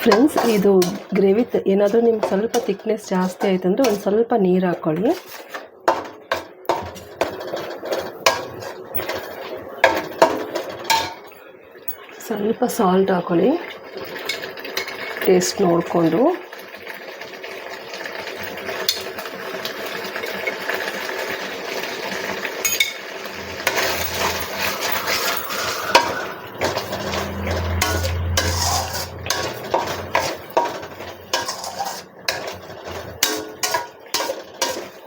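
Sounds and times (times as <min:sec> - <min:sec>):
metal spoon scraping a pan: 0:00.0 - 0:12.5, 0:14.0 - 0:15.6, 0:18.8 - 0:19.2, 0:22.6 - 0:35.0.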